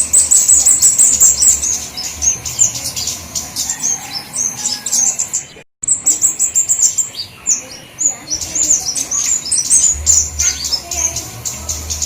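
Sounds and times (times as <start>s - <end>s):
songbirds chipping and twittering: 0.0s - 12.0s.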